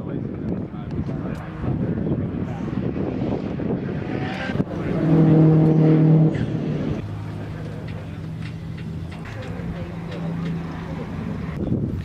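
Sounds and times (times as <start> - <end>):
car engine running: 3.4 - 11.9.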